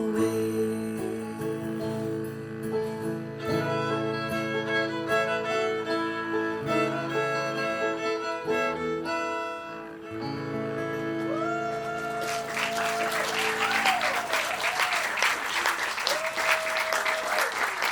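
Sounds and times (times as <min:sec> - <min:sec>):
bluegrass band playing: 0:00.9 - 0:14.6
audience applause: 0:11.3 - 0:17.9.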